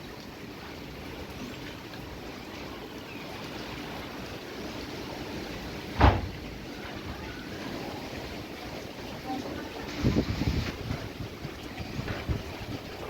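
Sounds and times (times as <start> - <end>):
loud thump: 6.0 - 6.4
strong wind rushing: 10.0 - 13.0.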